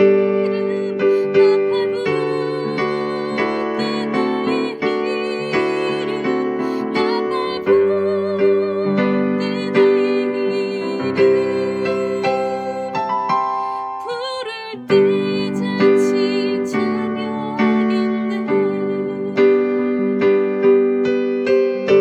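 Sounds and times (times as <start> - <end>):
electric piano playing a hymn: 0.0 - 22.0.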